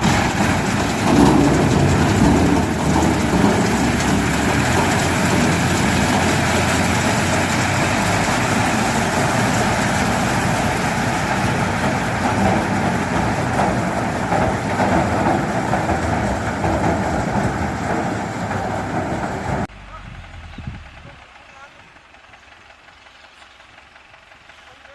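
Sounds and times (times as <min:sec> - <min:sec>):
harvester machinery clattering: 0:00.0 - 0:24.9.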